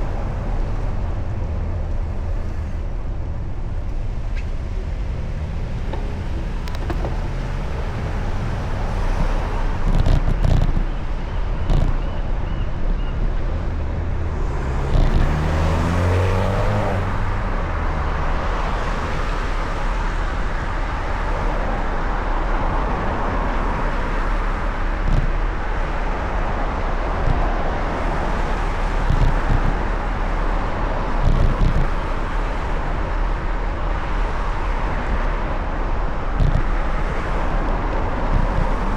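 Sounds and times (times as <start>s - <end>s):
road traffic noise: 0.0s - 38.9s
vehicle passing close by: 13.5s - 20.0s.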